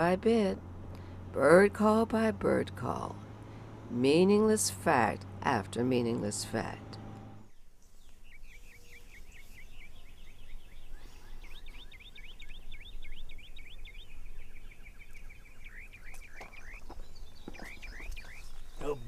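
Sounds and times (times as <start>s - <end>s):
high bird chirping: 7.4s - 19.0s.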